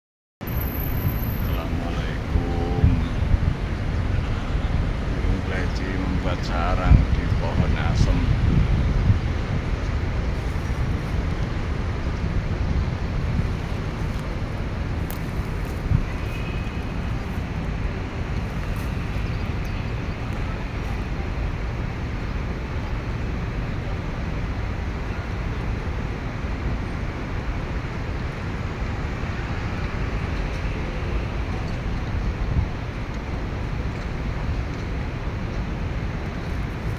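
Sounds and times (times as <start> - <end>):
low rumbling outdoor noise: 0.4 - 36.9.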